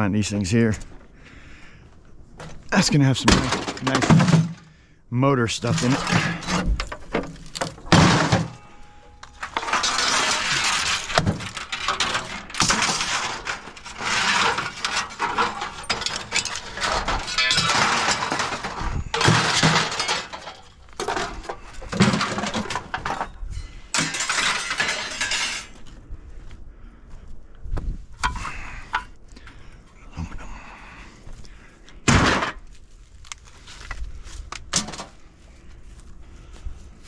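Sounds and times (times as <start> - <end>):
scrap metal clattering: 2.4 - 4.8, 5.6 - 25.8, 32.1 - 32.6, 34.7 - 35.2.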